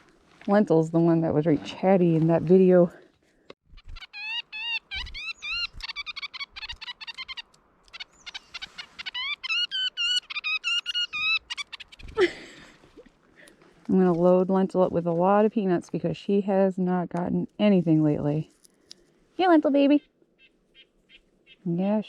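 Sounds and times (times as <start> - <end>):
blue jay whistled calls: 3.8 - 12.1, 19.9 - 21.6.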